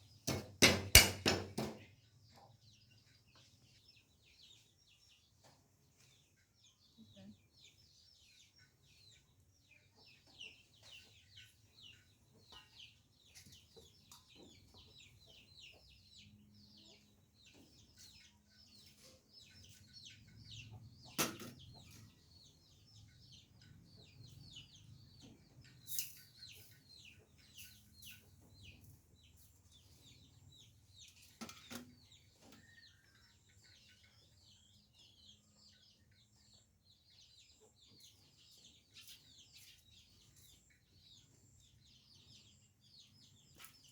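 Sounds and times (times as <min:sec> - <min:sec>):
sharp knocks: 0:00.3 - 0:01.8
chicks peeping: 0:01.8 - 0:43.9.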